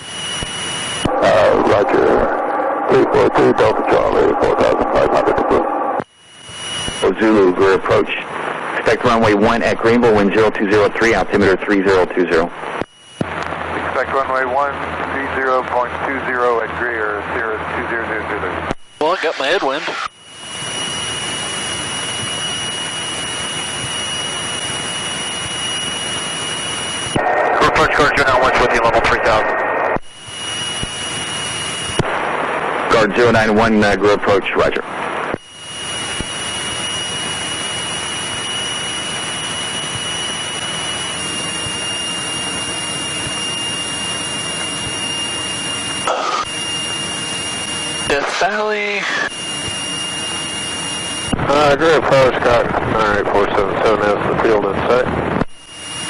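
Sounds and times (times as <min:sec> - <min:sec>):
high-pitched whine: 0:00.0 - 0:56.0
light aircraft engine drone: 0:19.4 - 0:56.0.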